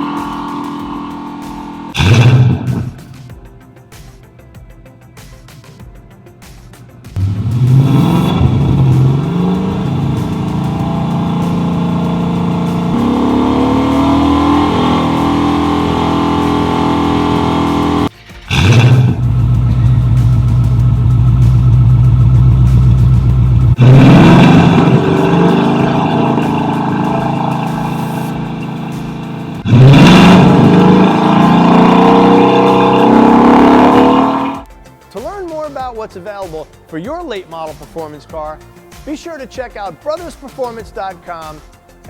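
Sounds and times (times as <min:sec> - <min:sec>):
car engine revving: 0:00.0 - 0:03.2, 0:07.2 - 0:34.7.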